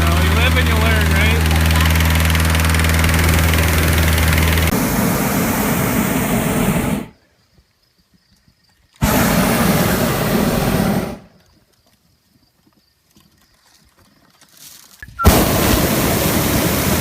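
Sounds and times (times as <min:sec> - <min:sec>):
propane burner blasts: 0:00.0 - 0:07.2, 0:09.0 - 0:11.3, 0:15.1 - 0:17.0.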